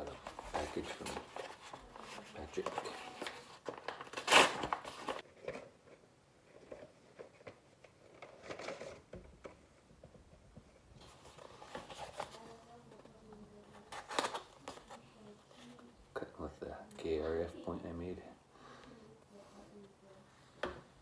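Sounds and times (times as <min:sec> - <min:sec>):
packaging ripping and rustling: 0:00.0 - 0:06.0, 0:07.1 - 0:09.1, 0:13.8 - 0:15.0.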